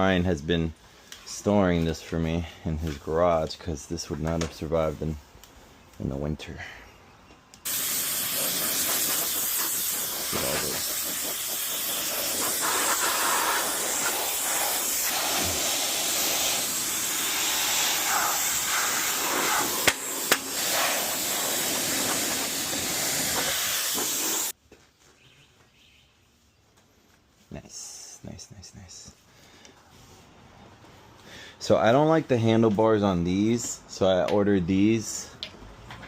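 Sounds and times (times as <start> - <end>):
loud spraying hiss: 7.6 - 24.6.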